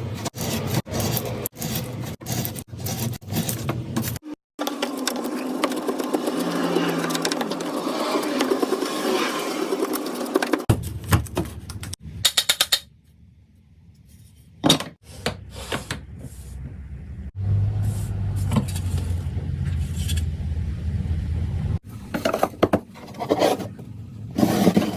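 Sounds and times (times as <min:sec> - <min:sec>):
sharp clicks and knocks: 0:10.4 - 0:13.0.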